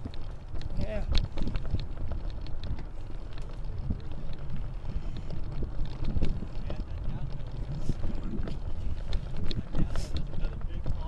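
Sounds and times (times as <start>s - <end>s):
bicycle clicks and rattles: 0.0s - 11.0s
wind buffeting microphone: 0.0s - 11.0s.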